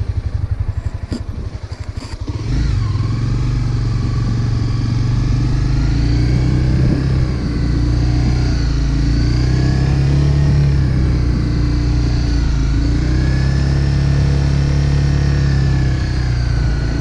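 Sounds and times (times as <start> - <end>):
motorcycle engine idling: 0.0 - 5.8
motorcycle pulling away: 0.0 - 17.0.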